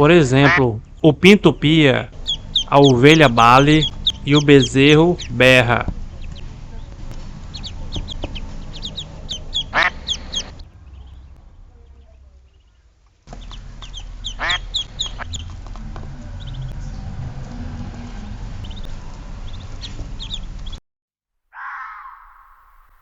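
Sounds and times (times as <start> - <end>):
drawn-out bird call: 0.0 - 20.8
chicks peeping: 0.4 - 17.3, 17.9 - 20.8.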